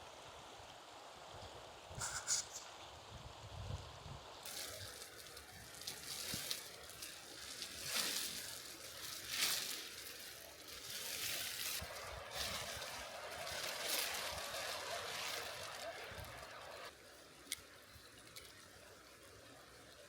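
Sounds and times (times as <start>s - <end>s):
running water rushing: 4.4s - 17.0s.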